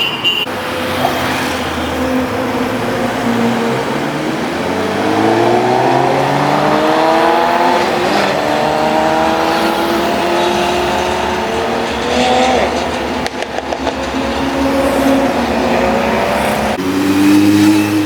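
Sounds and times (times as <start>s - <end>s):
motorcycle engine accelerating: 4.0s - 18.0s.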